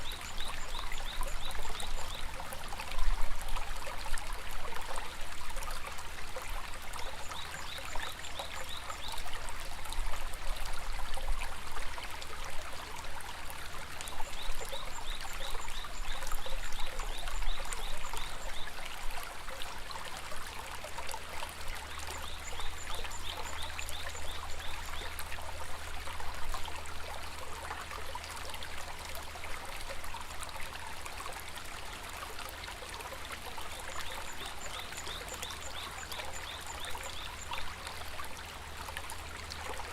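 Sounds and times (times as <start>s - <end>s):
river rushing and trickling: 0.0s - 39.9s.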